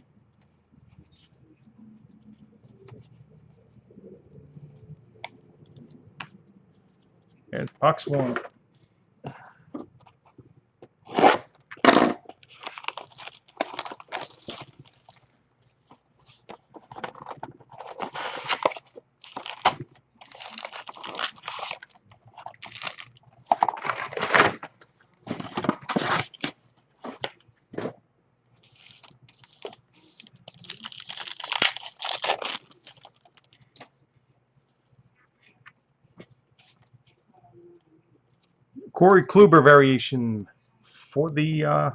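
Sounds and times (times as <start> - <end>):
packaging tearing and crinkling: 11.1 - 15.3, 17.0 - 24.7, 25.3 - 27.2, 28.7 - 33.5.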